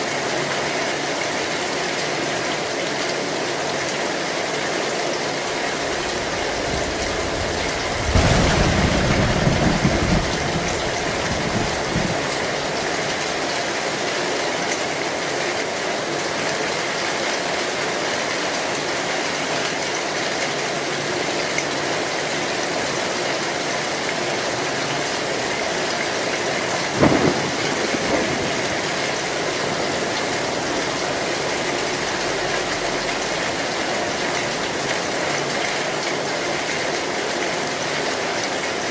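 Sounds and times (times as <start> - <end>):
heavy rain on a metal roof: 0.0 - 38.9
thunder rumbling: 5.8 - 13.4, 26.7 - 34.7.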